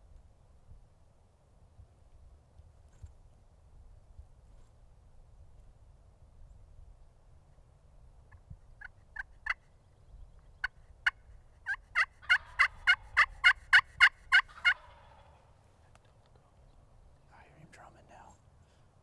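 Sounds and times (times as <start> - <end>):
turkey yelping: 10.6 - 15.5.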